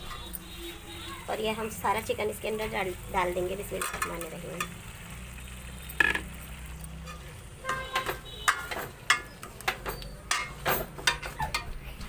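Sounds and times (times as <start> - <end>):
metal spoon clinking on pot: 3.7 - 4.8, 5.9 - 11.7.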